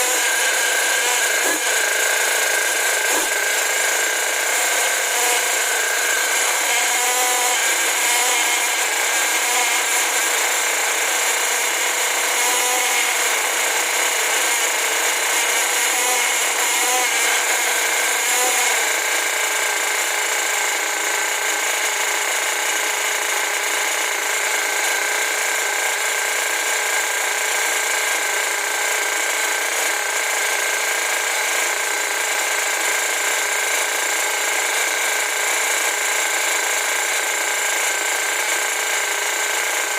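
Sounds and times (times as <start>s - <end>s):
nitro engine high-pitched buzz: 0.0s - 28.2s.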